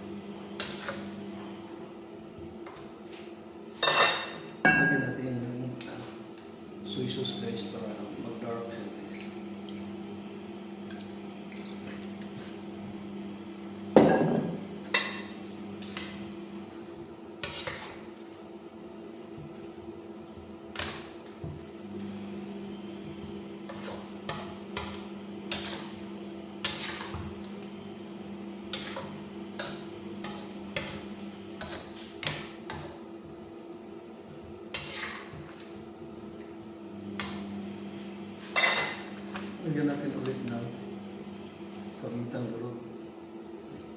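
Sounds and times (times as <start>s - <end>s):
utensil knocking and scraping a pan: 26.6s - 27.3s, 28.7s - 33.0s.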